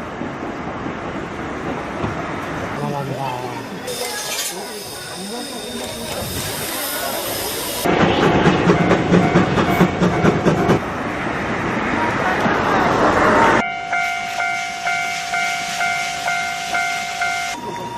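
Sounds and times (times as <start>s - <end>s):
train rumbling: 0.0s - 17.9s
train bell ringing: 3.7s - 7.9s, 13.6s - 17.9s
hiss: 3.9s - 7.9s.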